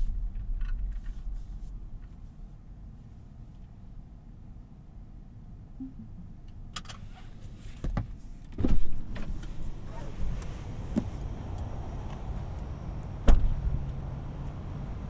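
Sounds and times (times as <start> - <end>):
low steady cabin hum: 0.0 - 15.0
car door shutting thump: 7.8 - 14.7.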